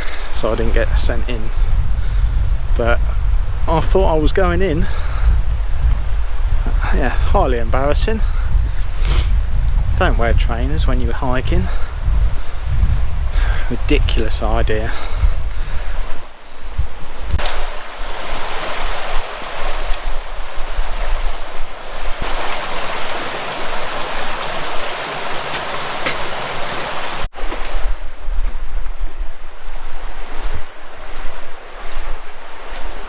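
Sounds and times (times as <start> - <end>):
wind buffeting microphone: 0.0 - 33.0
river water rushing over rocks: 17.4 - 27.3.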